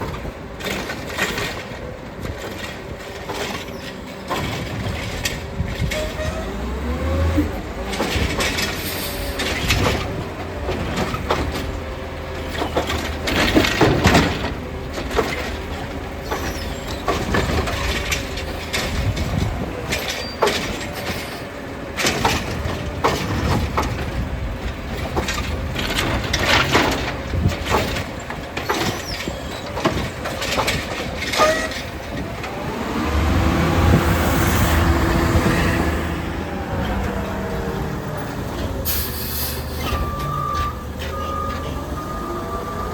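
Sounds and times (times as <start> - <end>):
garbage truck diesel engine: 0.0 - 42.9
engine revving: 6.4 - 8.8, 32.3 - 38.9
carts banging into hopper: 7.5 - 36.2.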